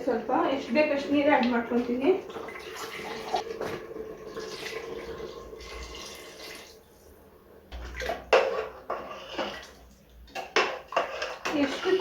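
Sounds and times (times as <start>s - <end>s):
water pouring into pot: 2.1s - 6.9s.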